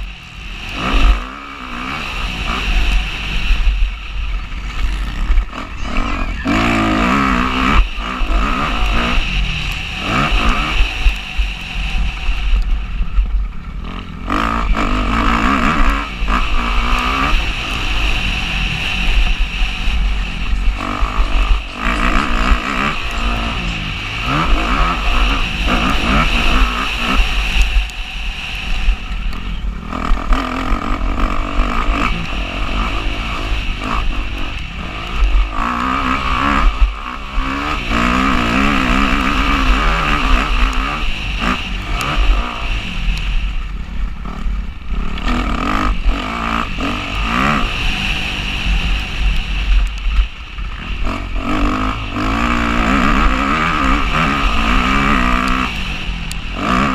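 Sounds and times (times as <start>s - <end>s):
motocross bike engine revving: 0.0s - 56.9s.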